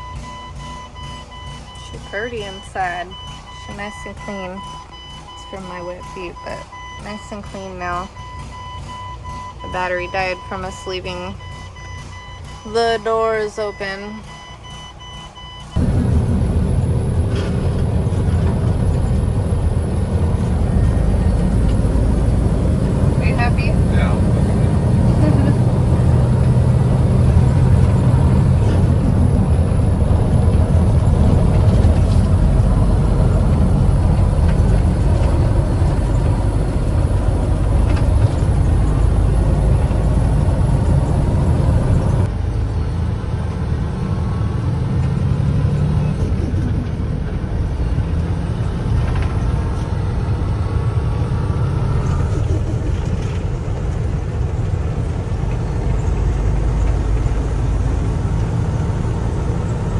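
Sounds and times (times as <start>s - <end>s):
truck engine rumbling: 0.0s - 59.9s.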